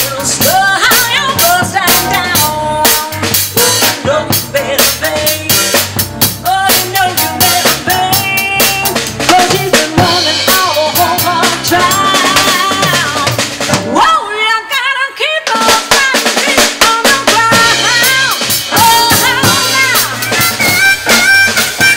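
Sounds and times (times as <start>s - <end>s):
drum kit: 0.0s - 14.8s, 15.4s - 21.9s
band music: 0.0s - 21.9s
bass: 0.0s - 21.9s
wavering lead melody: 17.5s - 21.9s.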